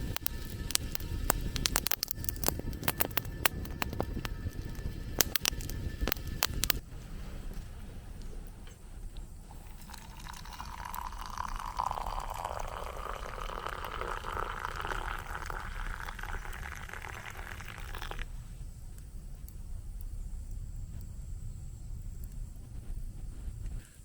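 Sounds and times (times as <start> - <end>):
water pouring into vessel: 9.5 - 18.3.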